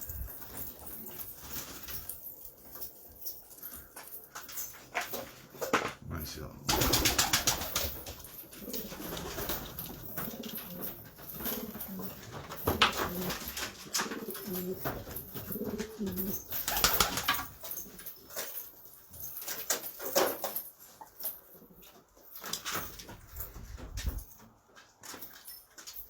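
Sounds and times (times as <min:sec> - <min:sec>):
pigeons cooing: 0:06.7 - 0:17.0.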